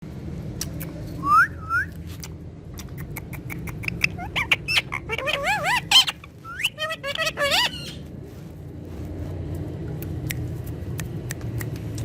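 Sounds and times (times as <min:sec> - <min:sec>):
parrot rising whistles: 0:01.2 - 0:01.9.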